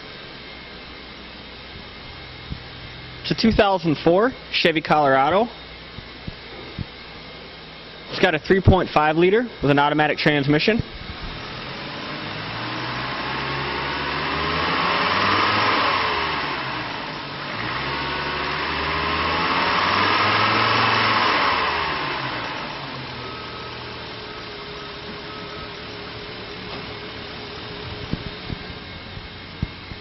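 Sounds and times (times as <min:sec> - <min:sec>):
truck engine revving and idling: 0:11.1 - 0:30.0.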